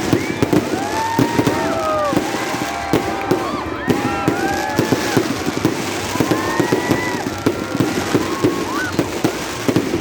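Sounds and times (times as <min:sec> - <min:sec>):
fireworks bangs and crackles: 0:00.0 - 0:10.0
fireworks whistling: 0:00.0 - 0:10.0.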